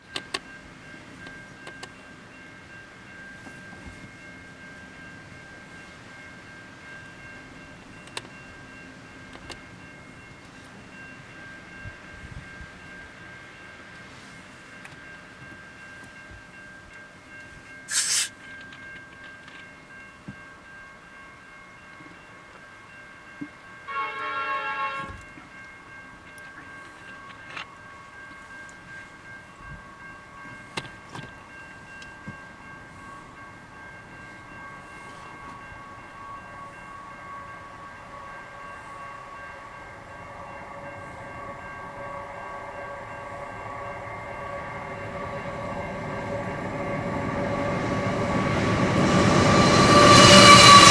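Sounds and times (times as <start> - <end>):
train rumble: 0.0 - 50.9
train horn blast: 23.9 - 25.3, 47.7 - 50.9.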